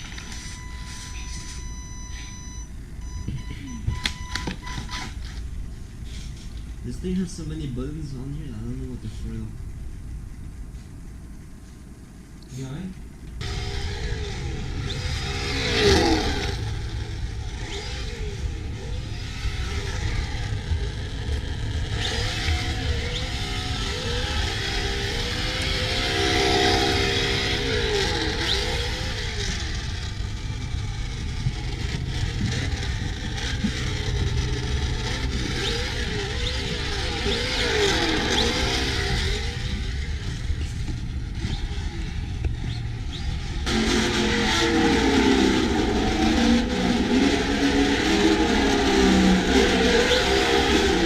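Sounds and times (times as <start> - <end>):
electric motor whining: 13.4 - 51.0.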